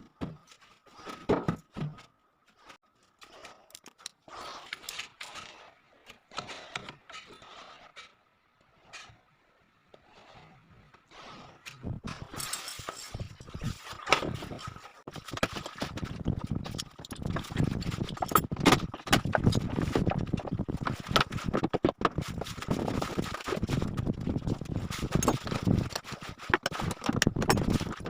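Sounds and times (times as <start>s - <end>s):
wooden boards and tools clattering: 0.0s - 2.1s, 13.9s - 28.0s.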